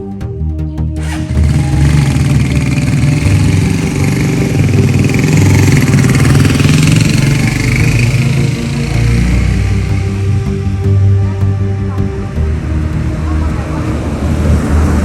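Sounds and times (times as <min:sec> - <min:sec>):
background music: 0:00.0 - 0:15.0
motorcycle engine running: 0:01.0 - 0:15.0.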